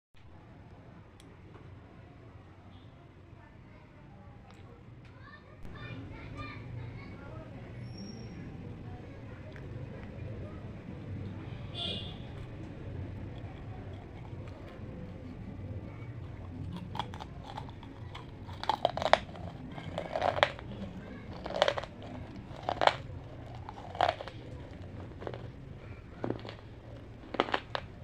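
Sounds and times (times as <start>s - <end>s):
crunchy food chewing: 11.0s - 28.0s.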